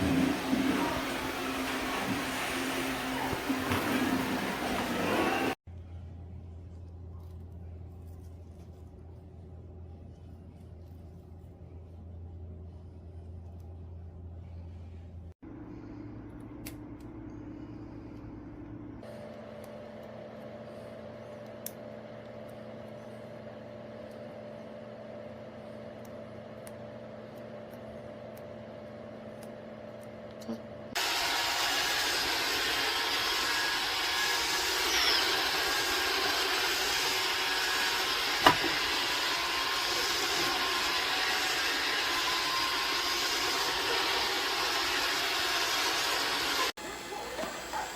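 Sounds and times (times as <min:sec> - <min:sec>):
robot vacuum whirring: 0:31.0 - 0:47.9.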